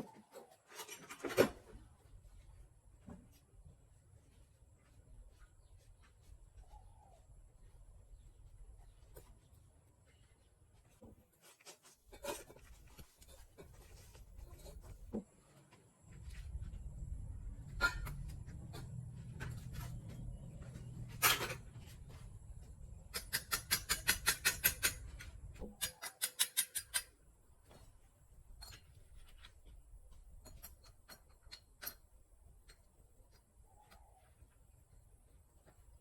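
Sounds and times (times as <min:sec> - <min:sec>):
low steady hum: 0:15.8 - 0:23.1
hand tools clicking on metal: 0:23.1 - 0:27.1.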